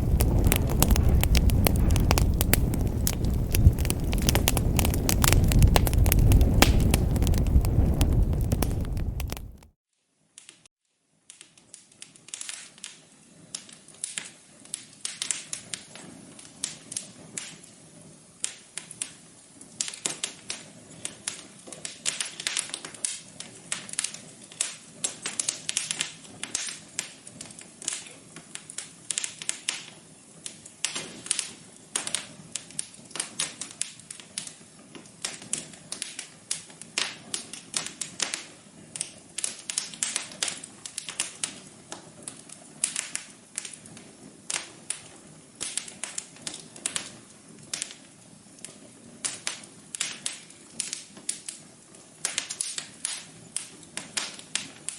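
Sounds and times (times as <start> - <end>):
wood fire crackling: 0.0 - 9.8, 11.3 - 54.9.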